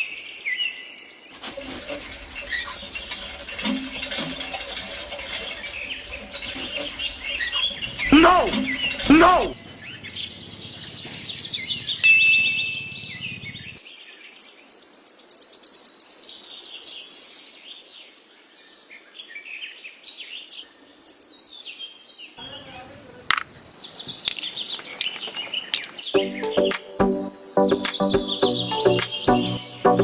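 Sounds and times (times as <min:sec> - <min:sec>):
small birds chirping: 0:01.1 - 0:13.8, 0:21.3 - 0:29.8
sharp clicks: 0:24.2 - 0:26.1.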